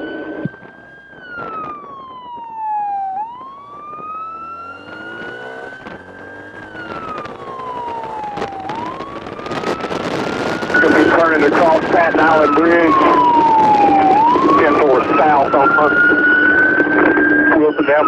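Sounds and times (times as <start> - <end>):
motorcycle engine accelerating: 0.0 - 10.8
wail siren: 0.0 - 18.0.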